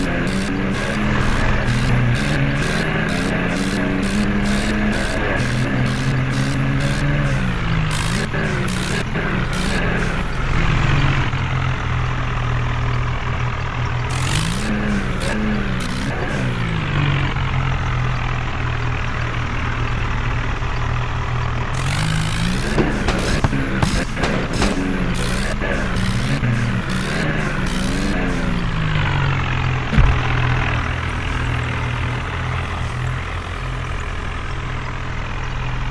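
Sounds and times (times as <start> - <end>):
tractor engine running under load: 0.0 - 35.9
short thump: 29.9 - 30.4.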